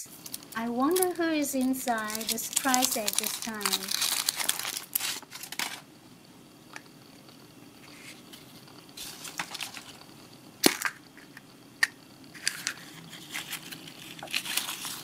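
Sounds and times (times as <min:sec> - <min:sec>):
foil crinkling: 0:00.1 - 0:05.9, 0:09.0 - 0:10.0, 0:12.4 - 0:15.0
egg shell cracking and snapping: 0:10.6 - 0:15.0.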